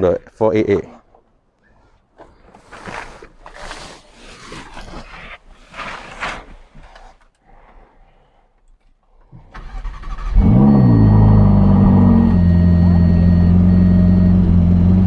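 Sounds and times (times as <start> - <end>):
engine starter cranking: 9.5 - 11.6
car engine revving and idling: 9.9 - 15.0.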